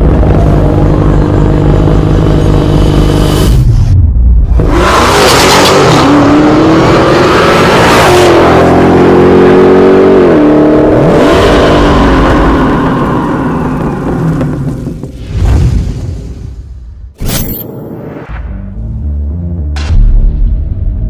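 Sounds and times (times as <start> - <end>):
car engine accelerating hard: 4.5 - 15.0.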